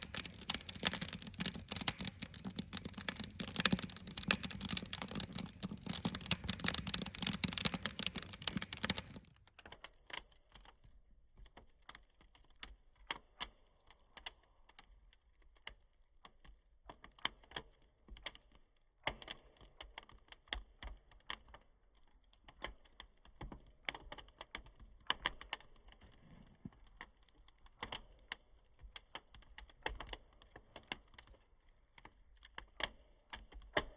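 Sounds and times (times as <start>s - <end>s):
bonfire crackling and popping: 0.0s - 9.4s.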